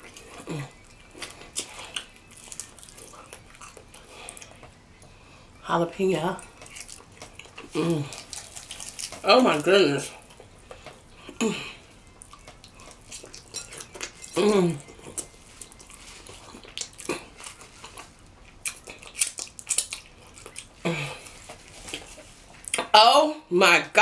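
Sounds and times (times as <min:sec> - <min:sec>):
wet chewing and lip-smacking: 0:00.0 - 0:05.1, 0:06.4 - 0:22.9
hummed moans of enjoyment: 0:00.3 - 0:00.8, 0:07.6 - 0:08.3, 0:11.2 - 0:12.0, 0:14.3 - 0:15.1, 0:20.8 - 0:21.3.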